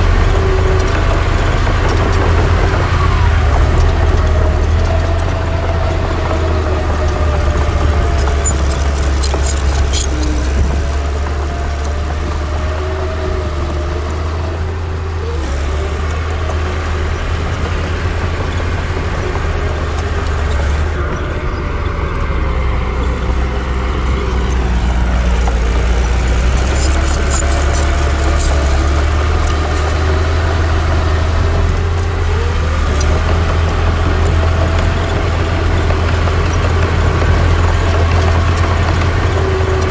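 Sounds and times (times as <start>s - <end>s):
bulldozer diesel engine under load: 0.0s - 39.9s
light metallic clinking: 7.6s - 12.5s, 23.8s - 30.8s.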